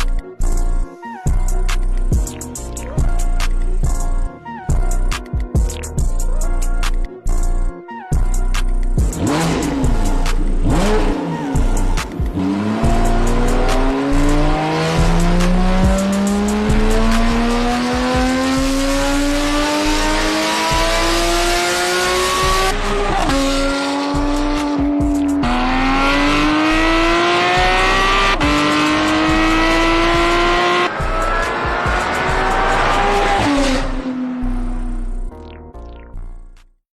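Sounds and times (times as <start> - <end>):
car engine pulling hard: 9.1 - 35.2.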